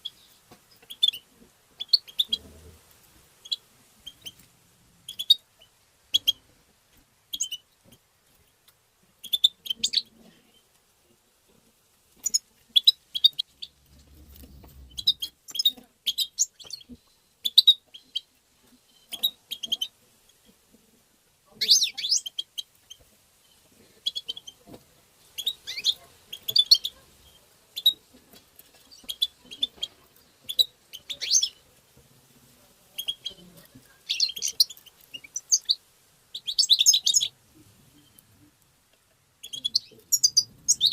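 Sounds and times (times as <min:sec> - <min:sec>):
goldfinch twittering chirps: 0:30.4 - 0:31.6, 0:34.1 - 0:37.3, 0:39.4 - 0:40.9.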